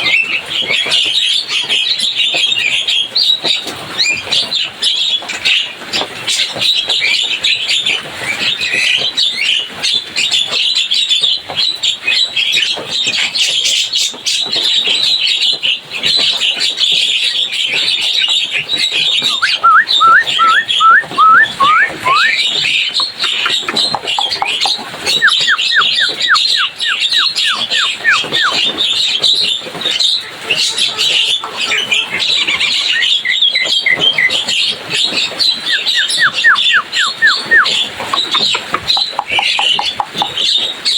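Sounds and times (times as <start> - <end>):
bird down-slurred whistles: 19.3 - 22.7, 24.2 - 28.7, 35.4 - 40.3
bird chattering harshly: 22.0 - 28.7, 35.8 - 40.5.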